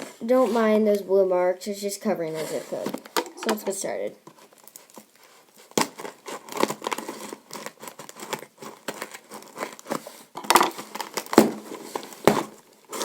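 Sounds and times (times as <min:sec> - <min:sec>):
package wrapping crinkling and tearing: 0:04.3 - 0:13.0.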